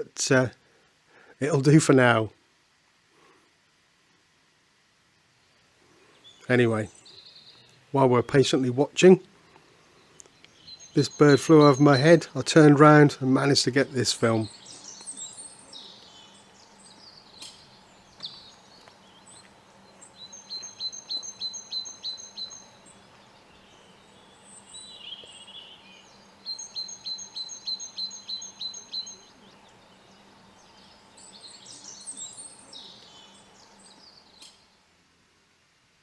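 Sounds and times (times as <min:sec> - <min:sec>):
birds chirping: 0:05.5 - 0:34.9
woodpecker high piping calls: 0:10.0 - 0:34.7.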